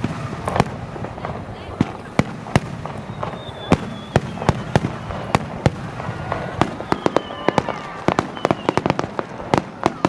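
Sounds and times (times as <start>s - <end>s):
fireworks bangs: 0.0s - 10.0s
faint thin whistling: 2.9s - 5.5s, 6.7s - 8.9s.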